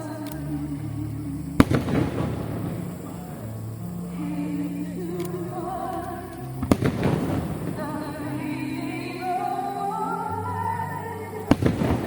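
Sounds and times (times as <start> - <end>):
held music notes: 0.0 - 12.0
fireworks bang with echo: 1.6 - 3.8, 6.6 - 8.4, 11.5 - 12.0.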